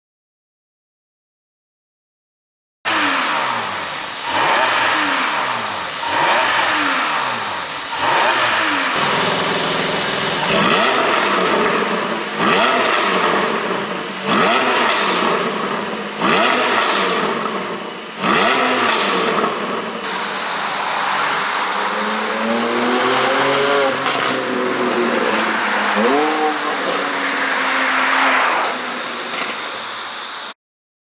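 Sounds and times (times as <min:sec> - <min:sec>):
car engine revving in blips: 0:02.9 - 0:30.4.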